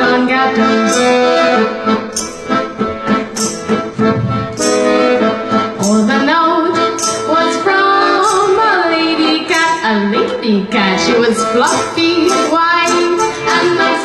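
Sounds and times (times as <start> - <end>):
woman singing: 0.0 - 1.7, 5.8 - 14.0
accordion playing folk accompaniment: 0.0 - 14.0.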